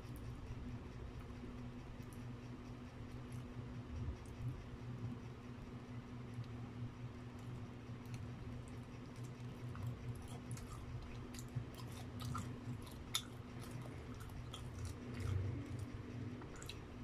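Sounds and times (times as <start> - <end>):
low steady hum: 0.0 - 17.0
wet chewing mouth clicks: 8.0 - 17.0.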